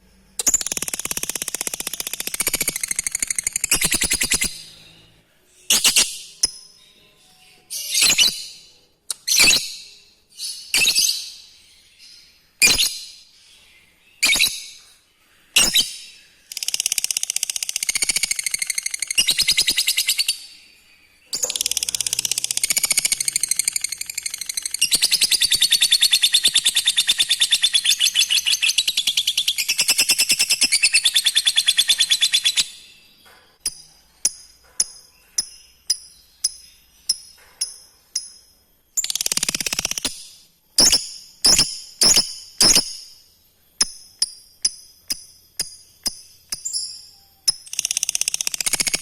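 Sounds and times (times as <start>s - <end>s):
lovebird chirps: 0.3s - 49.0s
lovebird chattering trill: 0.4s - 4.7s, 16.5s - 20.3s, 21.4s - 32.7s, 40.8s - 43.1s.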